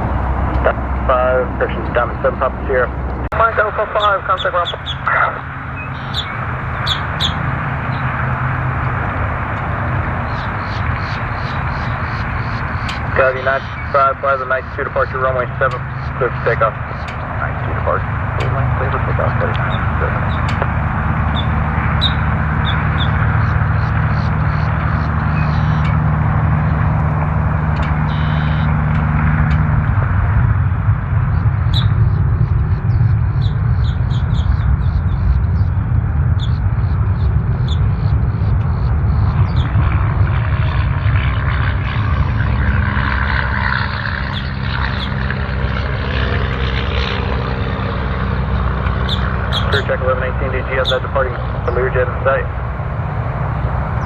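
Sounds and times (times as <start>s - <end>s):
aircraft engine droning: 0.0s - 54.0s
birds chirping: 0.0s - 54.0s
low hum: 0.0s - 54.0s
steady rushing noise: 0.0s - 54.0s
bird chirps: 4.3s - 5.1s, 5.7s - 8.1s, 10.2s - 14.1s, 21.3s - 26.0s, 28.0s - 28.8s, 31.3s - 39.8s, 49.0s - 49.9s.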